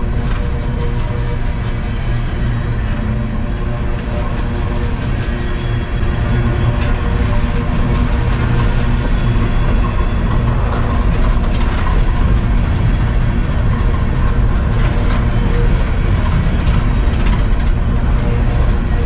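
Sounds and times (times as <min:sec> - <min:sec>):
train cars clanking: 0:00.0 - 0:19.0
train wheels rumbling on rails: 0:00.0 - 0:19.0.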